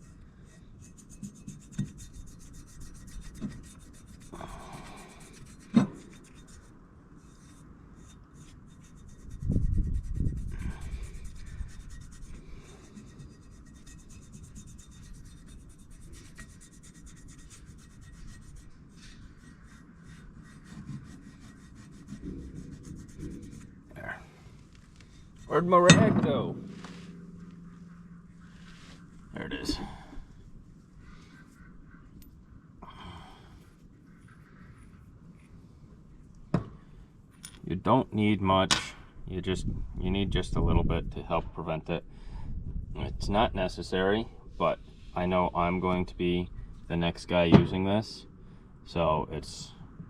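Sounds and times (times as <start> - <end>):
hands rubbing compound on bolts: 0.0 - 32.4.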